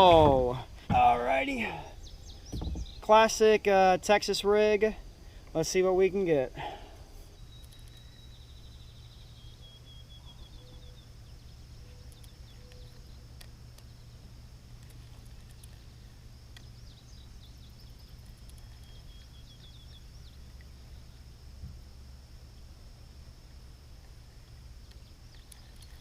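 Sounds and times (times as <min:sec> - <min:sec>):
insect drone: 0:00.0 - 0:26.0
faint clicks: 0:07.5 - 0:08.1, 0:12.0 - 0:13.9, 0:14.8 - 0:15.9, 0:17.8 - 0:19.0, 0:24.4 - 0:26.0.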